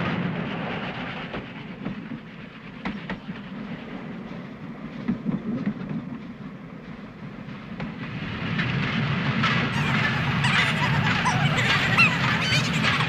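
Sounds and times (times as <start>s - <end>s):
steam train rumbling: 0.0s - 13.0s
wheels clicking over track: 7.8s - 13.0s.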